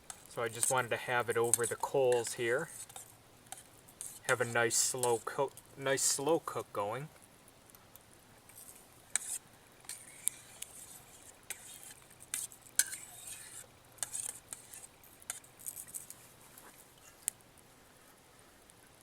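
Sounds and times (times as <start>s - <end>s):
metal utensil scraping a pot: 0.0s - 5.4s, 9.1s - 15.8s.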